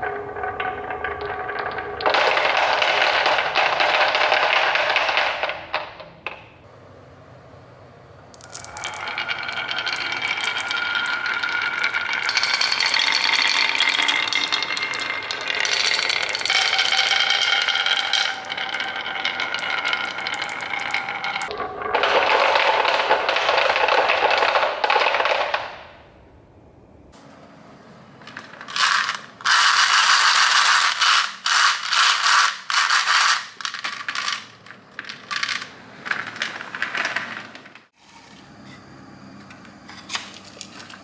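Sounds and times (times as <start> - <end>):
marbles rattling on marble run: 0.6 - 5.9, 8.4 - 25.7, 28.3 - 37.6.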